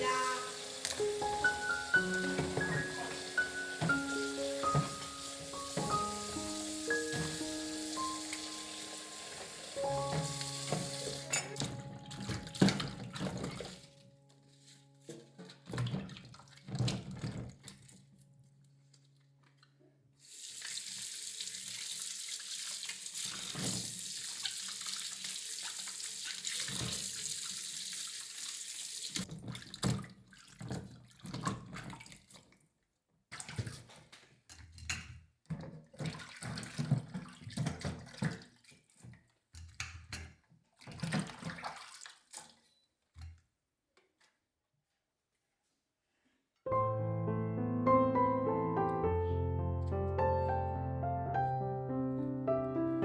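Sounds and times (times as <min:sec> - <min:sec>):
tap running into a sink: 0:00.6 - 0:13.8.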